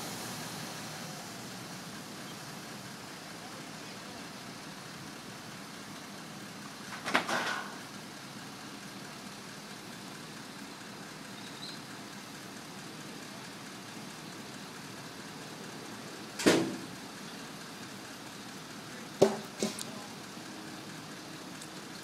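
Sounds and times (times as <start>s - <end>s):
truck engine running: 0.0s - 22.0s
sudden loud bang: 16.4s - 16.9s.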